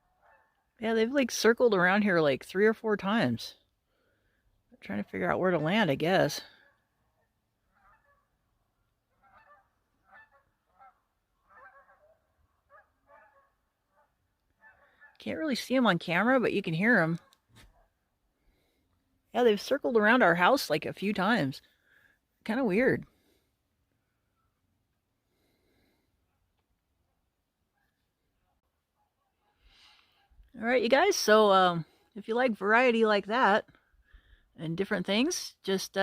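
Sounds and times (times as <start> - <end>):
distant geese honking: 5.2 - 15.2
distant goose call: 9.2 - 15.1.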